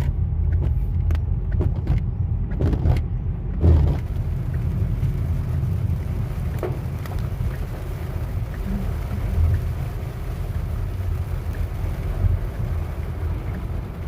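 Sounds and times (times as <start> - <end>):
car cabin road and engine noise: 0.0 - 14.0
light ticks: 6.5 - 10.7.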